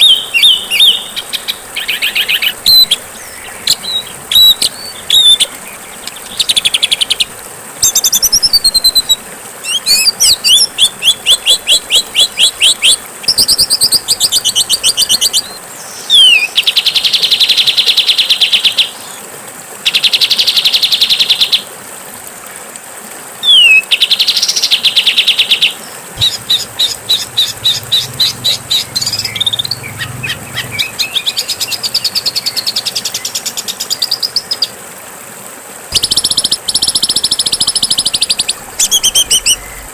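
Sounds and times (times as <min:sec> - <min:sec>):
songbirds singing harsh trills: 0:00.0 - 0:16.8, 0:23.5 - 0:24.3, 0:26.2 - 0:34.7, 0:35.9 - 0:39.9.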